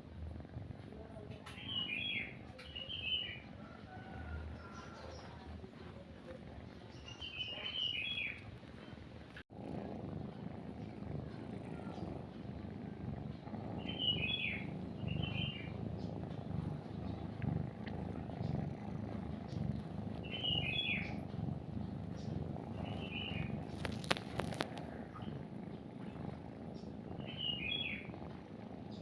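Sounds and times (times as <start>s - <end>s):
cat purring: 0.0s - 29.0s
small bird chirping: 1.2s - 9.0s, 10.2s - 29.0s
crackle of clicks: 21.3s - 25.4s.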